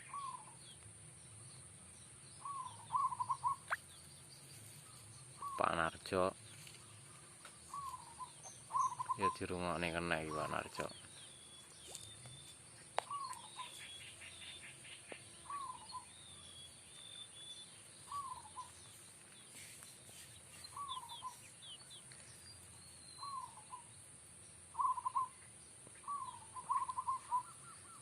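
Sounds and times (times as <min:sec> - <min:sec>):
dove cooing: 0:00.0 - 0:00.6, 0:02.4 - 0:03.8, 0:07.7 - 0:11.0, 0:13.0 - 0:13.9, 0:15.4 - 0:16.1, 0:18.1 - 0:18.8, 0:20.7 - 0:21.4, 0:23.2 - 0:23.9, 0:24.7 - 0:25.4, 0:26.0 - 0:28.0
small birds chirping: 0:00.0 - 0:28.0.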